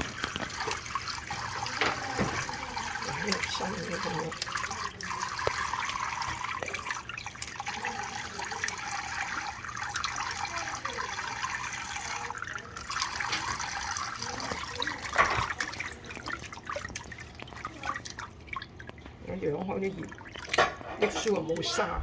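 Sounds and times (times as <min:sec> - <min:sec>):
tap water running into sink: 0:00.0 - 0:22.0.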